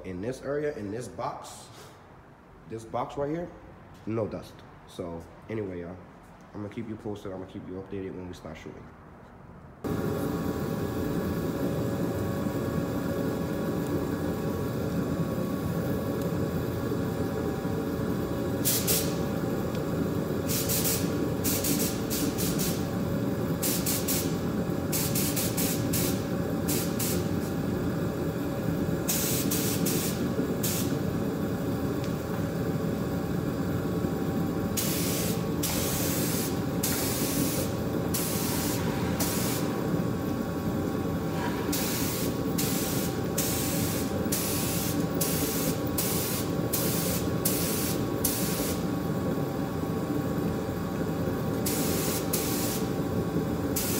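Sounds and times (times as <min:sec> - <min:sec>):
steady mechanical drone: 0:09.8 - 0:53.9
hissing spray bursts: 0:18.6 - 0:19.4, 0:20.4 - 0:22.9, 0:23.6 - 0:27.6, 0:29.0 - 0:31.0, 0:34.8 - 0:39.8, 0:41.6 - 0:48.9, 0:51.6 - 0:53.0.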